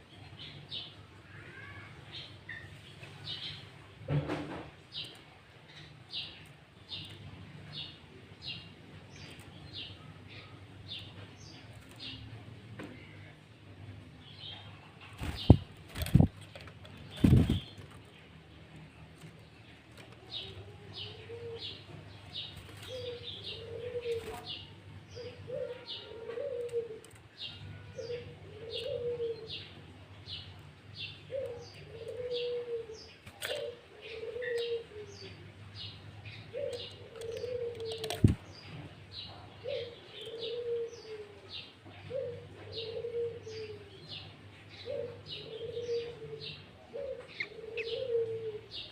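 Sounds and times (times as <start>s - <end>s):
songbird chirping: 4.5s - 48.9s
dove cooing: 20.3s - 22.0s, 22.6s - 27.2s, 27.9s - 29.8s, 31.3s - 35.4s, 36.5s - 38.4s, 39.6s - 48.9s.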